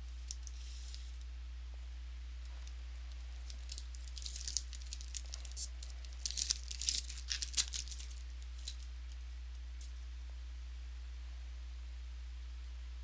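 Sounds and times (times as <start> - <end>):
low electrical hum: 0.0 - 13.0
wrapper crinkling and tearing: 2.6 - 9.2.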